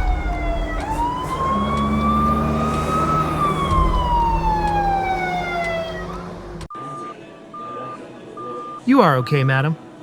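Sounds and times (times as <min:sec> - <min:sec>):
emergency siren wailing: 0:00.0 - 0:06.7
low engine rumble: 0:00.0 - 0:06.7.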